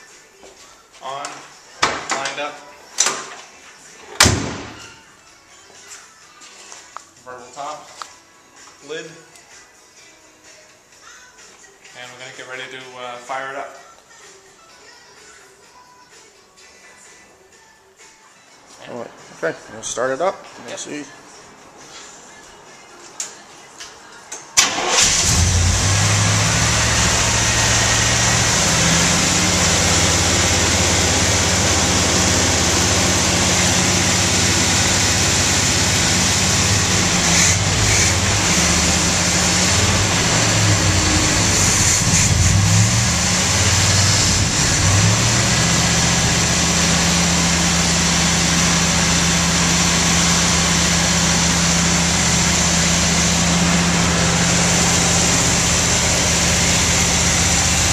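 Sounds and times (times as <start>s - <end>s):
car engine starting and running: 24.6s - 57.9s.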